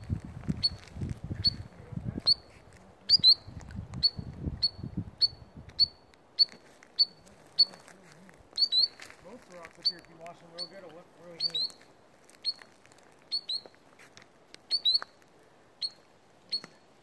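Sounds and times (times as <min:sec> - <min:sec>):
low rumble on microphone: 0:00.0 - 0:05.8
shorebird calling high notes: 0:04.0 - 0:08.0, 0:08.6 - 0:11.8.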